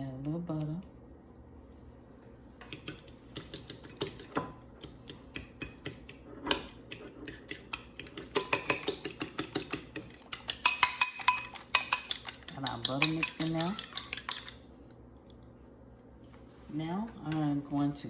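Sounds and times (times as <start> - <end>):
utensil clicking against bowl: 2.6 - 14.6.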